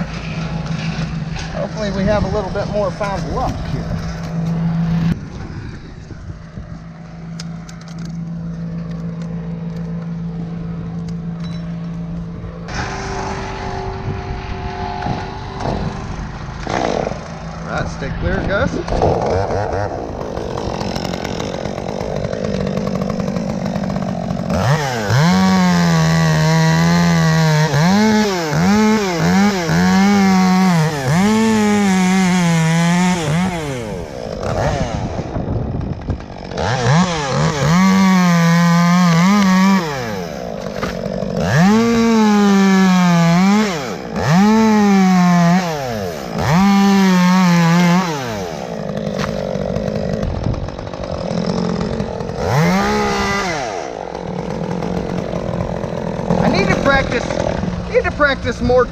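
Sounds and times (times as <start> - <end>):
chainsaw cutting wood: 0.0 - 5.4, 6.8 - 17.7, 18.7 - 58.9.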